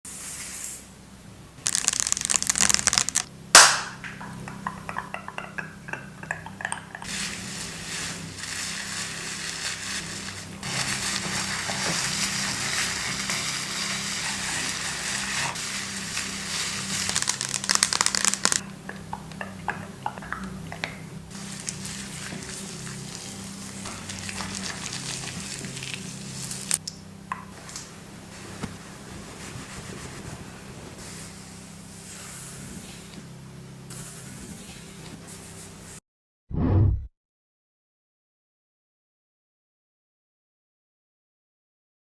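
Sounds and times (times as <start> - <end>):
crinkling and scratching: 1.6 - 3.3, 7.0 - 18.6
steady hiss: 7.0 - 18.6.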